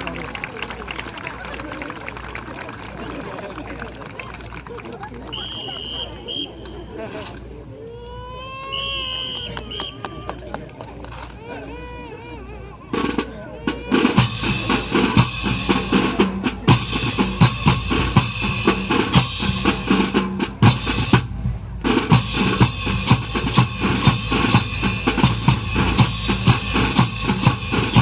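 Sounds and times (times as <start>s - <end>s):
drum-heavy music: 13.0s - 28.0s.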